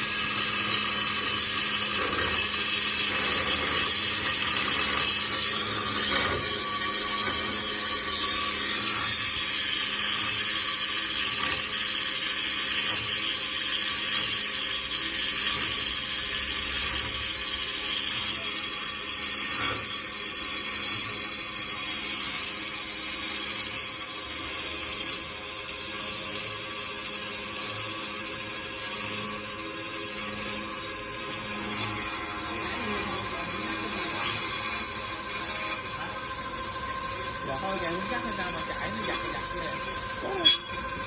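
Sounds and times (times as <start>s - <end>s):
cutting machine running: 0.0s - 41.0s.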